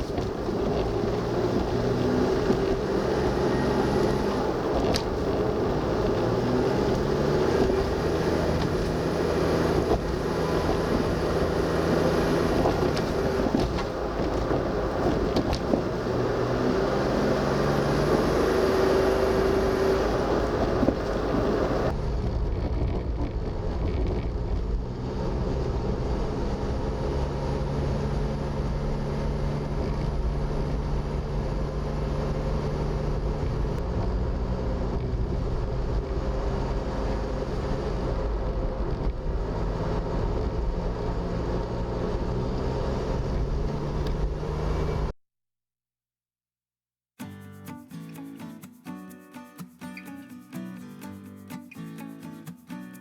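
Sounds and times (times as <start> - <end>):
road noise hiss: 0.0 - 22.0
van engine running: 0.0 - 45.1.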